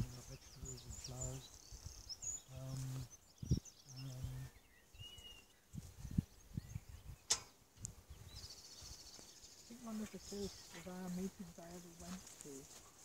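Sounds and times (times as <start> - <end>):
bird chirps: 0.0 - 7.5, 8.1 - 12.6
sharp click: 7.2 - 7.6.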